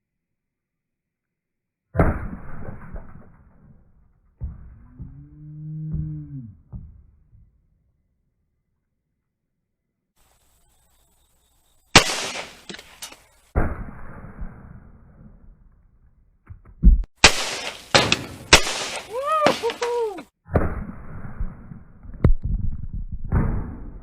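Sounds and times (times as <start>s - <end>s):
gunshots: 11.9s - 14.8s, 17.2s - 21.0s.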